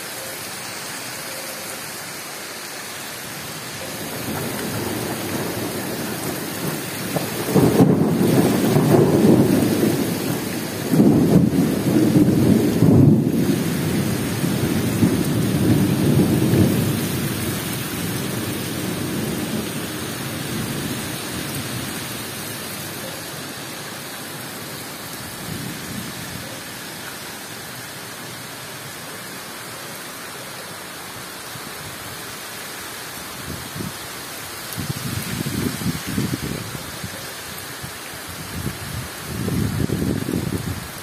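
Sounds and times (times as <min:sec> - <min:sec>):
heavy rain hissing: 0:00.0 - 0:41.0
low thunder rumble: 0:04.0 - 0:22.1.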